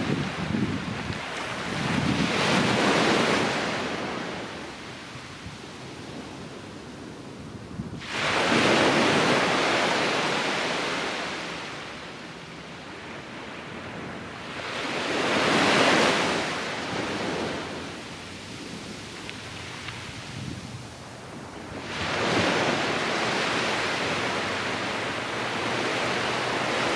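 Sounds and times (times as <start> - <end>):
ocean waves breaking: 0.0 - 5.4, 8.0 - 26.9
surf hiss: 7.6 - 13.0, 14.2 - 26.9.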